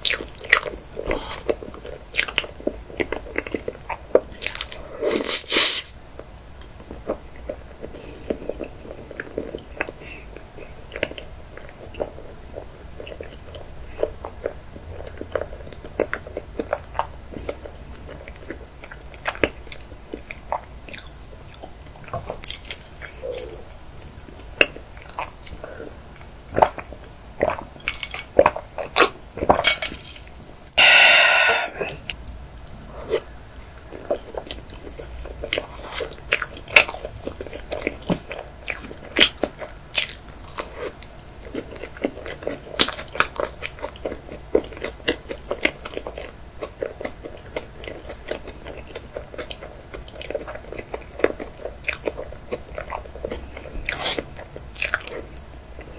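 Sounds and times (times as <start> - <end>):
person biting and chewing cake: 0.0 - 6.0, 6.8 - 55.9
wet mouth sounds: 30.8 - 37.0.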